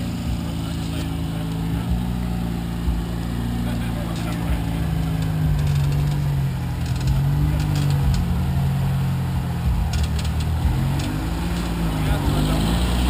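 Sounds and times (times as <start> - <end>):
off-road vehicle engine running: 0.0 - 13.0
sharp clicks: 5.0 - 8.3, 9.8 - 11.8.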